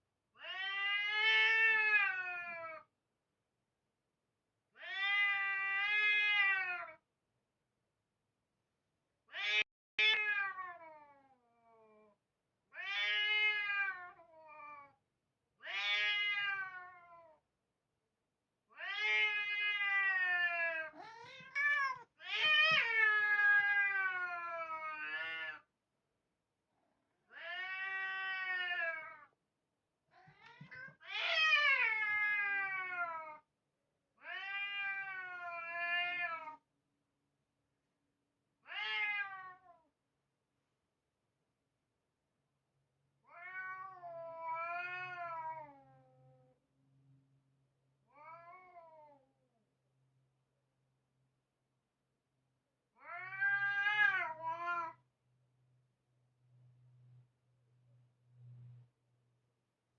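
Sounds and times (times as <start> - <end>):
cat meowing: 0.4 - 2.9, 4.8 - 7.0, 9.3 - 11.1, 12.7 - 14.8, 15.6 - 17.4, 18.7 - 25.7, 27.3 - 29.3, 38.6 - 39.7, 43.3 - 45.9, 53.0 - 55.0.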